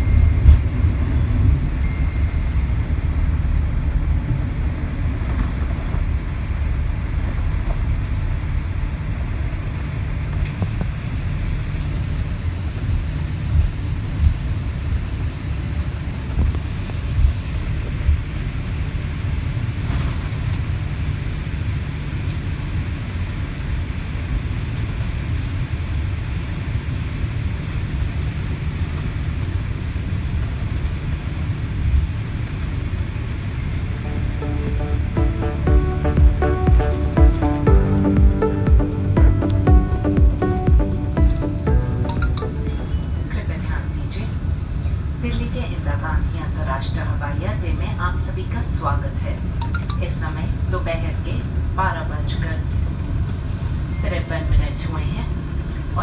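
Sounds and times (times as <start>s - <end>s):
aircraft cabin rumble: 0.0s - 22.3s.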